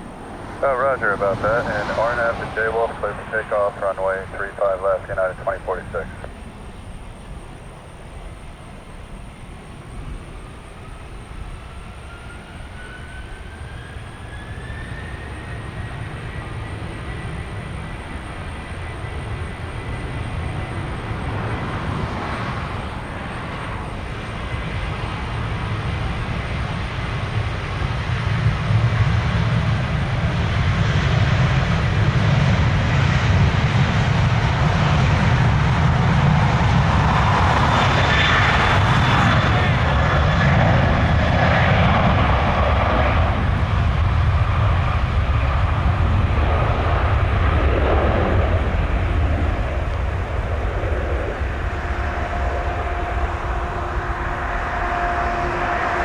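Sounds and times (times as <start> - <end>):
jet engine rumble: 0.0 - 56.0
jet engine whine: 0.0 - 56.0.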